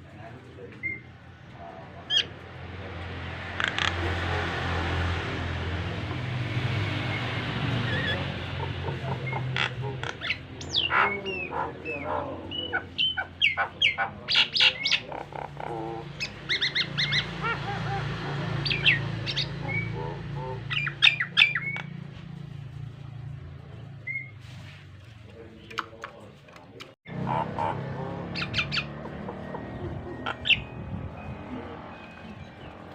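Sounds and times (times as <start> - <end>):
myna whistling and squawking: 7.0 - 21.9, 24.0 - 24.4, 28.3 - 32.7.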